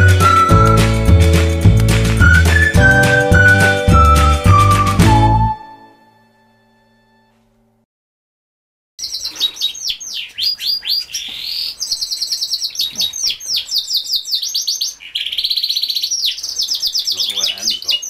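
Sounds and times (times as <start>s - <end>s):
canaries singing trills: 9.0s - 18.0s.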